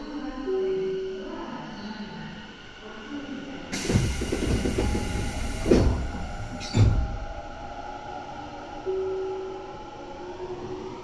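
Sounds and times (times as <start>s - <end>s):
electric train running: 3.7s - 7.2s.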